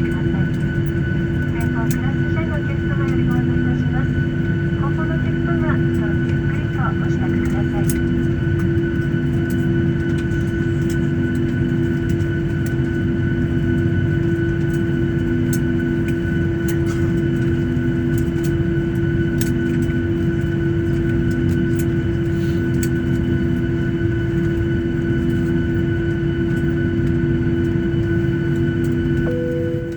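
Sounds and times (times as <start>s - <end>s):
aircraft cabin hum: 0.0s - 29.9s
low rumble: 29.3s - 29.9s.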